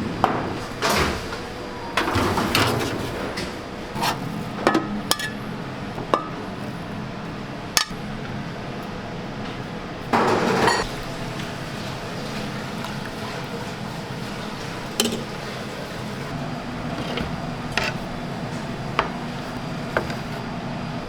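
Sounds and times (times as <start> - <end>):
kitchenware knocking and clinking: 10.2 - 10.9, 15.0 - 15.3.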